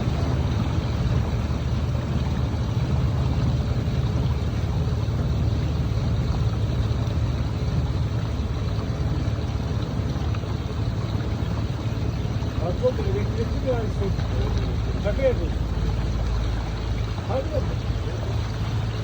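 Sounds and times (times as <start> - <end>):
boat motor droning: 0.0 - 19.0
water noise: 0.0 - 19.0.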